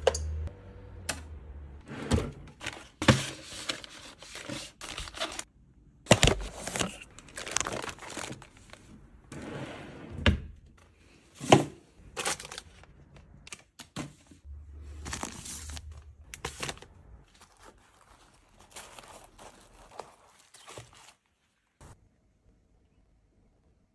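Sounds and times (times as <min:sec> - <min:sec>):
packaging crinkling and rustling: 0:02.6 - 0:05.5, 0:06.1 - 0:09.0, 0:12.1 - 0:13.8, 0:14.8 - 0:21.6.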